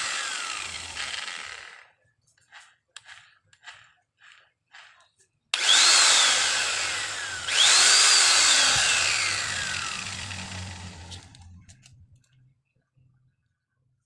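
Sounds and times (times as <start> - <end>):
angle grinder motor whine: 0.0 - 1.8, 5.6 - 11.6.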